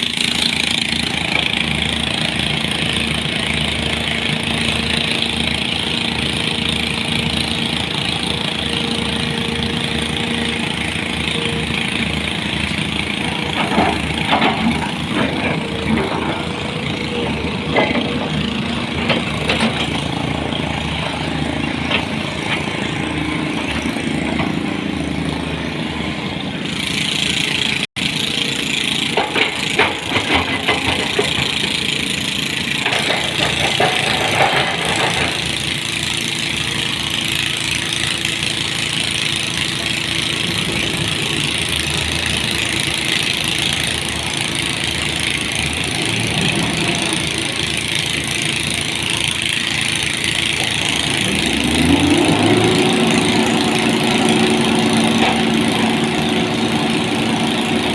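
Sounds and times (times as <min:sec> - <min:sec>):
heavy vehicle engine running: 0:00.0 - 0:57.9
knocks and clatter: 0:13.1 - 0:17.0, 0:17.6 - 0:20.2, 0:28.9 - 0:35.7.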